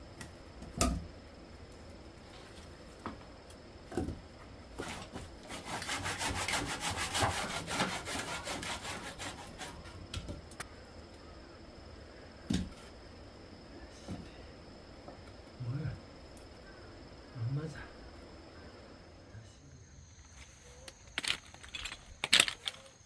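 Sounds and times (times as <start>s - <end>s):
scraping on wood: 4.8s - 10.1s.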